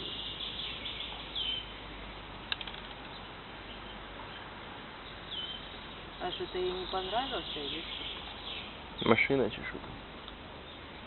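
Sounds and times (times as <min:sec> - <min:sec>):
bird chirps: 0:00.0 - 0:01.8, 0:03.0 - 0:09.3
sharp click and ticks: 0:02.5 - 0:03.1.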